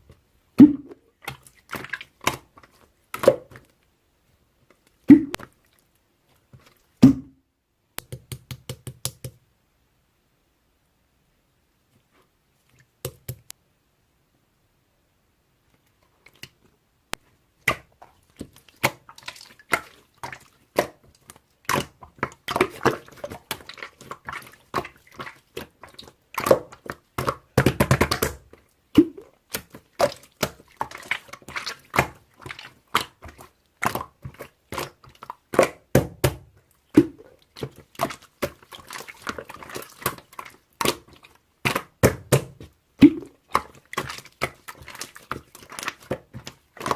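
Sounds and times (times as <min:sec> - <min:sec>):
slime squelching by hand: 0:00.5 - 0:03.8, 0:17.2 - 0:46.9.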